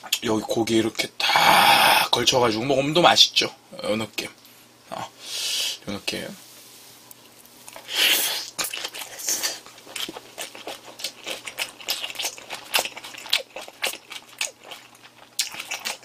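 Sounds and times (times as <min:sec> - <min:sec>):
chewing with jaw and lip smacks: 0:08.5 - 0:16.0.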